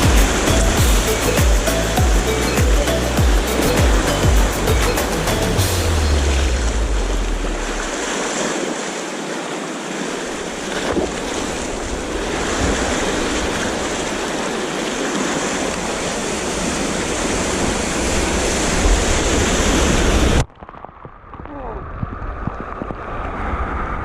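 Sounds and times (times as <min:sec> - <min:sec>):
surf washing along shore: 0:00.0 - 0:20.4, 0:21.4 - 0:24.0
wind buffeting microphone: 0:21.1 - 0:24.0.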